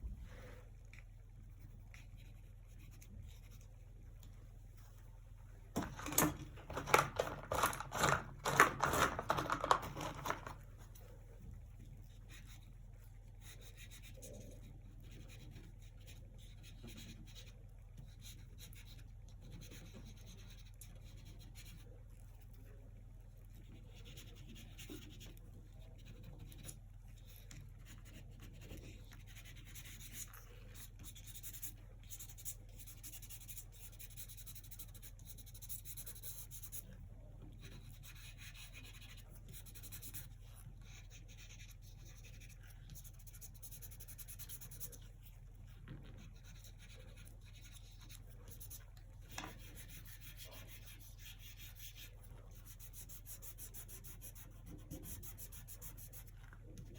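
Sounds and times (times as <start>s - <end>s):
scratchy paintbrush strokes: 0.0s - 5.1s, 7.5s - 56.9s
steady low hum: 0.0s - 9.2s.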